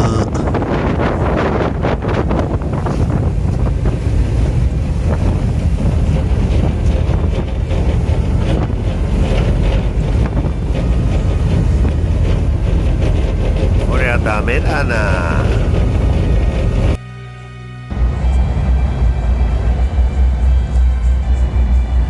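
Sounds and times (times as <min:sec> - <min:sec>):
sea waves: 0:00.0 - 0:16.9
wind buffeting microphone: 0:00.0 - 0:17.0.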